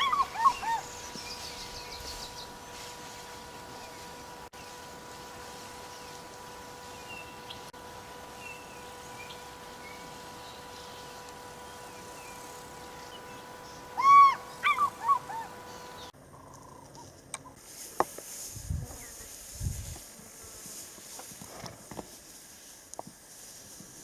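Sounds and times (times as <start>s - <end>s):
loud hooting bird call: 0.0s - 1.7s, 13.0s - 16.8s
outdoor hiss: 17.6s - 24.0s.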